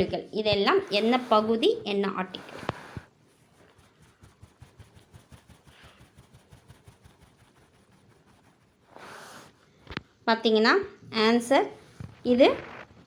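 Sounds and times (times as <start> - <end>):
soft hiss: 0.0 - 10.2.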